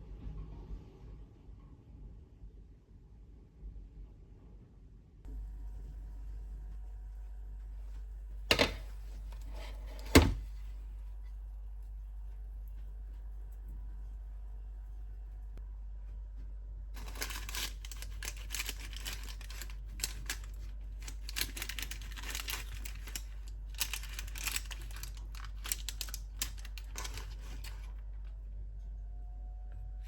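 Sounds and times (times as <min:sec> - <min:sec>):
steady low hum: 0:05.3 - 0:30.0
crinkling and rapid clicking: 0:16.9 - 0:28.3.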